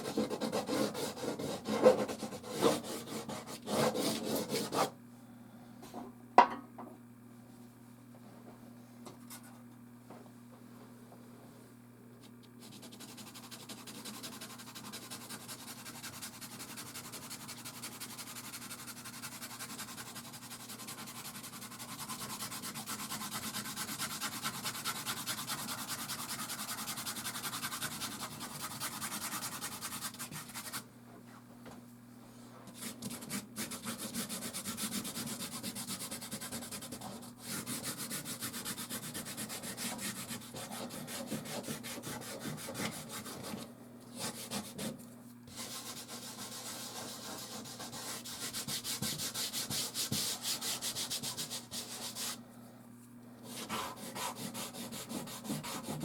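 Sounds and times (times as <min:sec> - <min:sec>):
pastel stick scratching on canvas: 0:12.6 - 0:30.8, 0:32.8 - 0:43.6, 0:44.2 - 0:52.4, 0:53.5 - 0:56.0.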